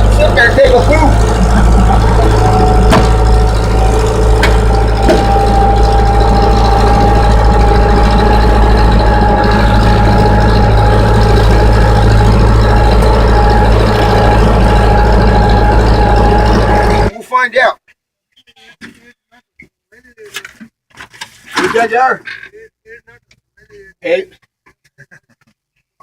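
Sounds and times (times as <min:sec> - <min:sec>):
diesel engine running: 0:00.0 - 0:17.1
high whine: 0:00.0 - 0:17.1.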